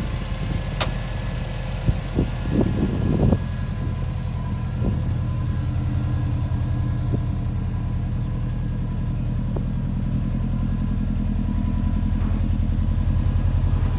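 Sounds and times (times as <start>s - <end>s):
car engine idling: 0.0s - 13.9s.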